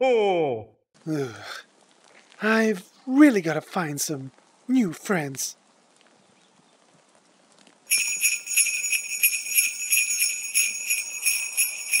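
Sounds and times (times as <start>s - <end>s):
sleigh bells jingling: 7.9s - 12.0s.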